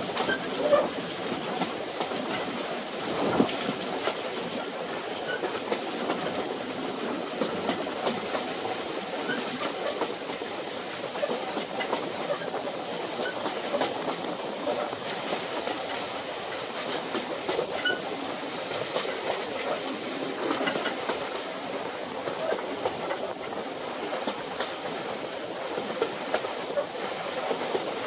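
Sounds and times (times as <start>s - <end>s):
wheels clattering on rails: 0.0s - 28.0s
sharp clicks over rail joints: 7.4s - 8.6s, 11.2s - 18.0s, 18.7s - 21.5s, 22.3s - 25.0s, 25.8s - 28.0s.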